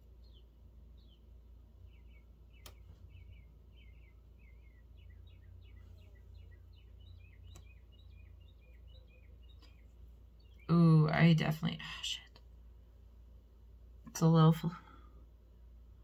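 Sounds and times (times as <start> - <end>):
low steady hum: 0.0 - 16.0
small birds chirping: 0.0 - 16.0.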